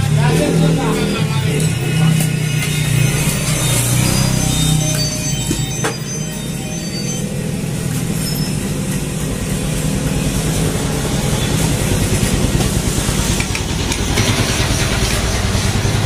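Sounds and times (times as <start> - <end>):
motorcycle engine idling: 7.3 - 16.0.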